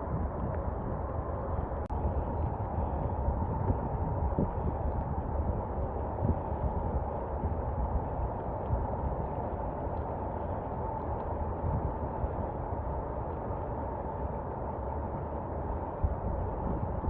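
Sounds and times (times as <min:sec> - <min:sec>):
steady muffled rain hiss: 0:00.0 - 0:17.0
faint raindrop ticks: 0:04.8 - 0:14.3.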